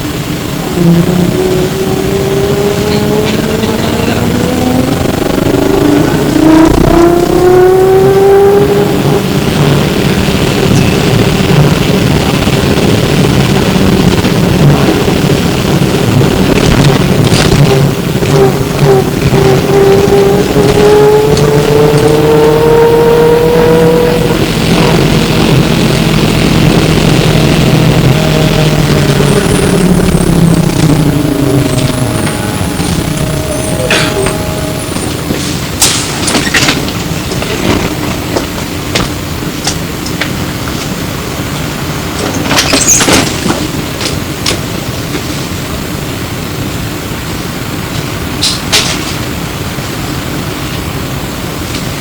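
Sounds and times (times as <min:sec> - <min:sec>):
bus road noise: 0:00.0 - 0:52.0
electric motor whining: 0:00.6 - 0:09.6, 0:18.0 - 0:35.8.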